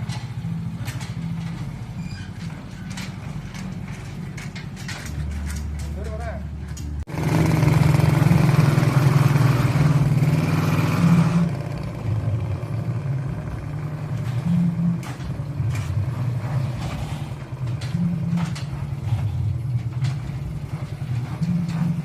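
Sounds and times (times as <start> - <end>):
small engine running: 7.1 - 22.0.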